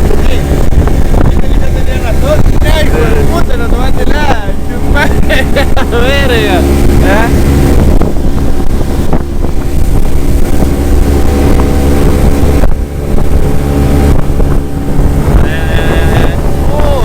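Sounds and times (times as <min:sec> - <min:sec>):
outboard engine running: 0:00.0 - 0:17.0.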